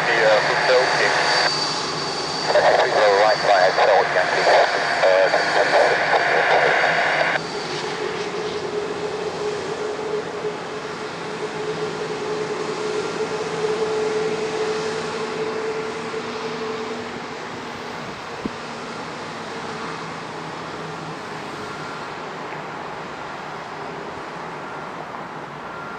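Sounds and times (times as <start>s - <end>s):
jet engines idling: 0.0s - 25.9s.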